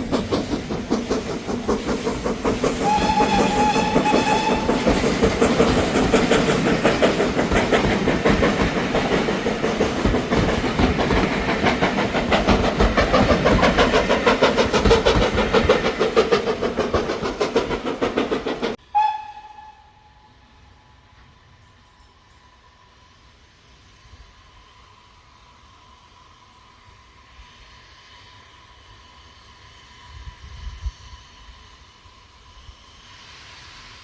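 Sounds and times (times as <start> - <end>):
steam train running past: 0.0 - 34.0
steam whistle: 2.8 - 5.1, 18.8 - 21.0.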